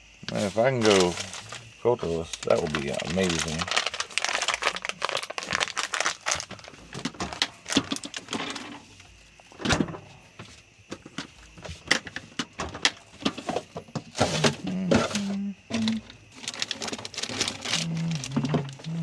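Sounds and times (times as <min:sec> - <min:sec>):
packaging rustling: 0:00.2 - 0:08.9, 0:15.8 - 0:19.0.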